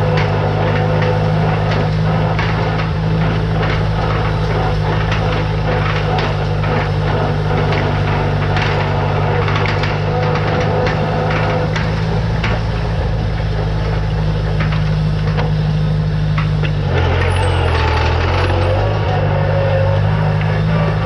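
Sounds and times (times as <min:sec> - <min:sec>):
clicks and knocks: 0:00.0 - 0:15.7
tractor engine running: 0:00.0 - 0:21.0.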